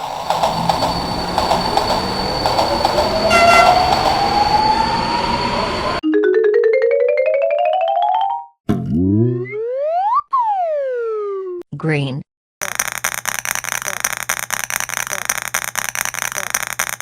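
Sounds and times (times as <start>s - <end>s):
rising whine: 0.0s - 6.0s
train rumbling and clacking: 0.0s - 6.0s
train horn hoot: 3.2s - 4.8s.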